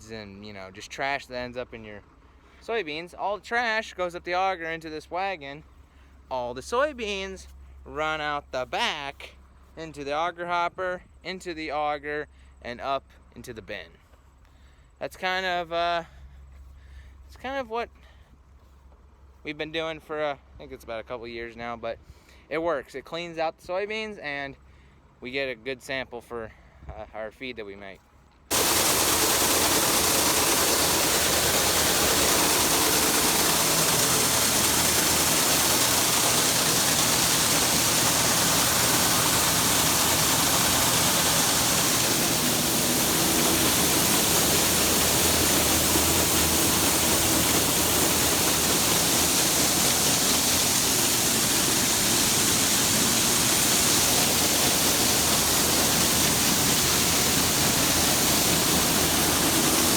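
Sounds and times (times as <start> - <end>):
grain machinery rushing: 28.5 - 59.9.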